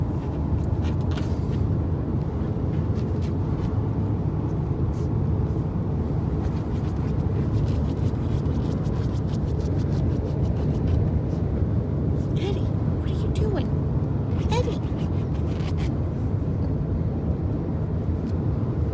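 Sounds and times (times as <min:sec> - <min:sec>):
dog claws scratching a pillow: 0:00.0 - 0:01.7, 0:02.3 - 0:04.6, 0:06.2 - 0:11.5, 0:14.2 - 0:16.5.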